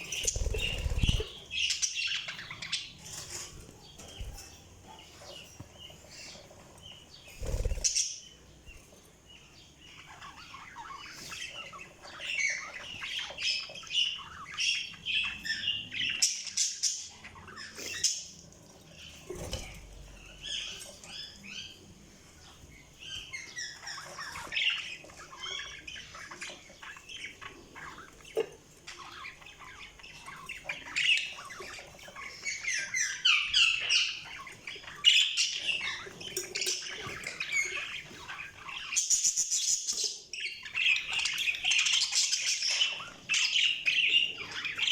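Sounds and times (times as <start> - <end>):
budgies chirping and chattering: 0.0 - 44.9.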